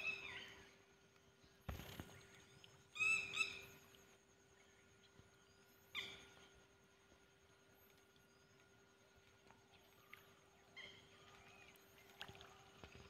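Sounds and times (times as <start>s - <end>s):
bird calls: 0.0s - 0.8s, 1.7s - 5.2s, 5.8s - 6.5s, 9.7s - 13.0s
faint steady hum: 0.0s - 13.0s.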